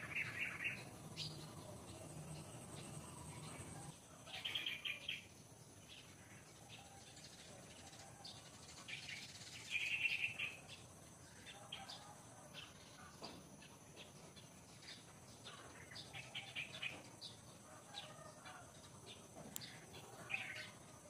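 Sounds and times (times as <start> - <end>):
wild birds chirping: 0.0 - 21.0.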